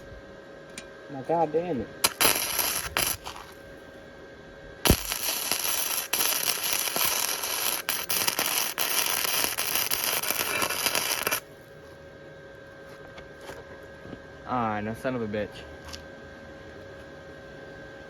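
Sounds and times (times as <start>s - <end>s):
welder arc crackling: 2.0s - 3.6s, 4.8s - 11.5s.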